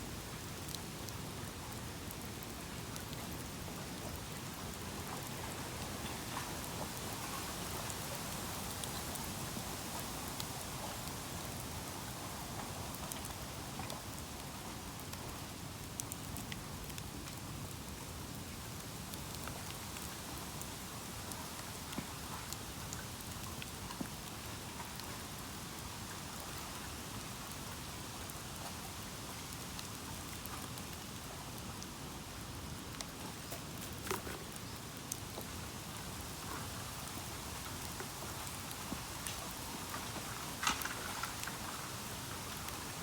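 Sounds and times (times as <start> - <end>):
bonfire crackling and hissing: 0.0 - 43.0
burning bamboo snapping: 38.7 - 42.3.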